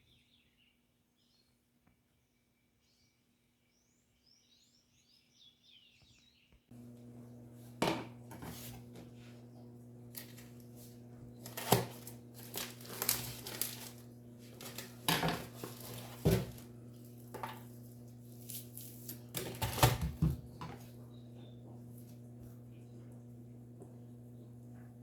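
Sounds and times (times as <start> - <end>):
steady low hum: 6.7 - 25.0
dishes and utensils clattering: 14.6 - 16.6.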